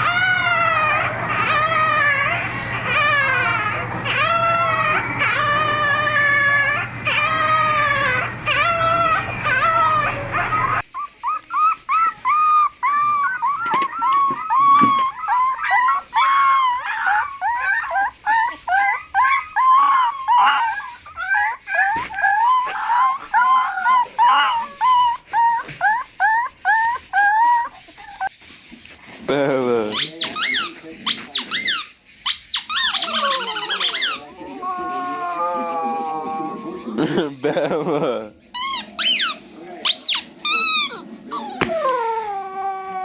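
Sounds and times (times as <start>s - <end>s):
steady hum: 0.0s - 10.8s
dogs whining: 0.0s - 43.0s.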